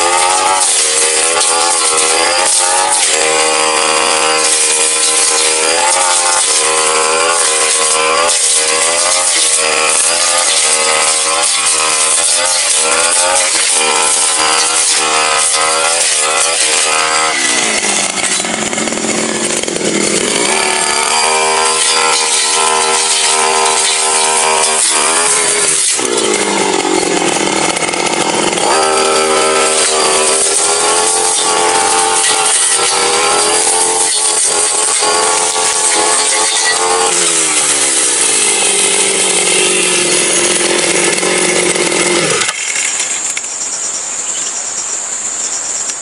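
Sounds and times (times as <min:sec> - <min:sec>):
blade cutting brush: 0:00.0 - 0:43.5
brush cutter engine at full throttle: 0:00.0 - 0:44.3.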